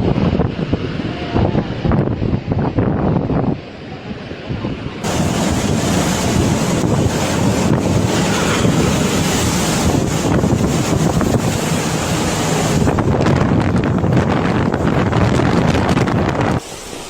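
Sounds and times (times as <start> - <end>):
wind buffeting microphone: 0.0 - 16.7
rushing flood water: 3.6 - 17.0.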